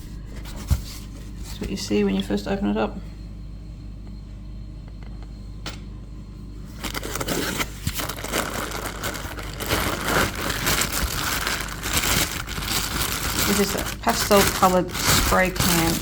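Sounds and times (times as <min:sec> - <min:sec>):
plastic wrapping crinkling: 0:06.8 - 0:16.0.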